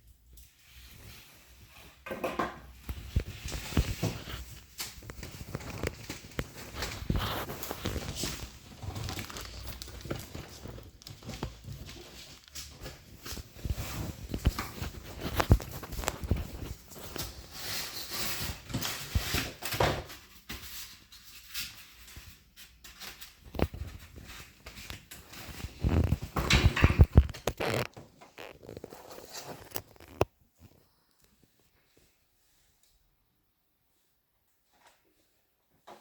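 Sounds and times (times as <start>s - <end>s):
packaging rustling: 2.9s - 19.7s, 23.1s - 30.3s.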